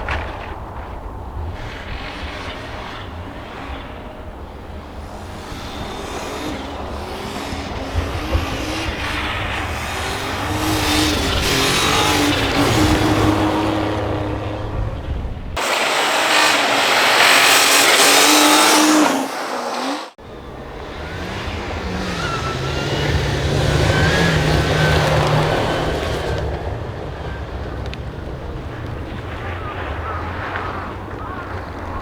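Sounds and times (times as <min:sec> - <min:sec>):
rally car engines revving: 0:00.0 - 0:32.0
loud hiss: 0:15.6 - 0:20.2.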